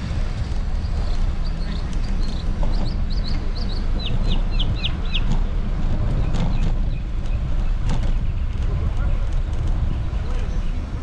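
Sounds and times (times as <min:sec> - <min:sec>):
steady low rumble: 0:00.0 - 0:11.0
bird chirping: 0:00.8 - 0:05.3.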